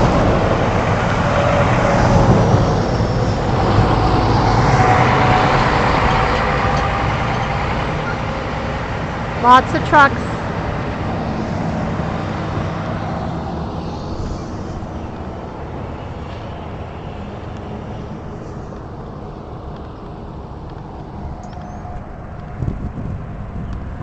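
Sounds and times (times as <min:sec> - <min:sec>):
vehicle driving past: 0:00.0 - 0:09.4.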